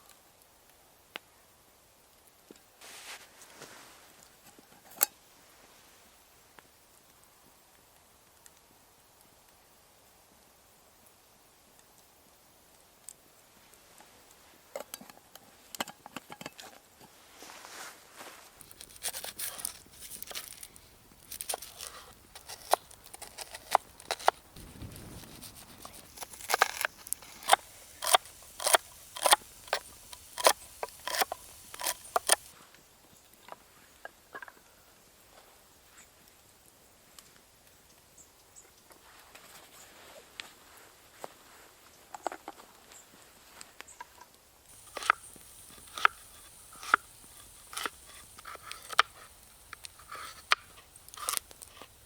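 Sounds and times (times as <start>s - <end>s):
sharp snaps and crunches: 18.6s - 32.5s, 44.7s - 52.0s.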